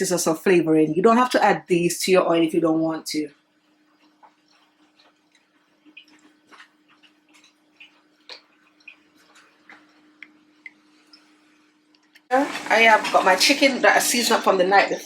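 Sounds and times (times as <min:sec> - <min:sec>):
garlic frying in oil: 0:12.2 - 0:15.0.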